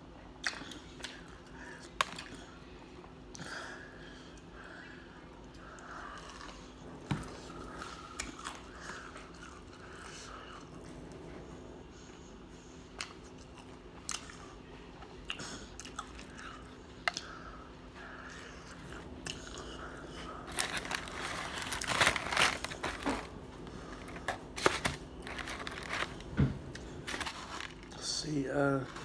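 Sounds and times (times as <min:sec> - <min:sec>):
person chewing crunchy food: 0:06.0 - 0:10.8, 0:15.2 - 0:17.3, 0:18.4 - 0:28.0.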